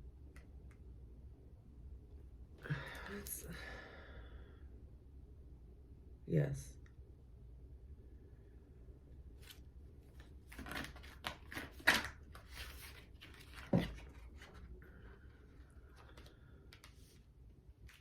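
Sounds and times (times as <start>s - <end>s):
cards rustling and clicking: 9.4s - 18.0s.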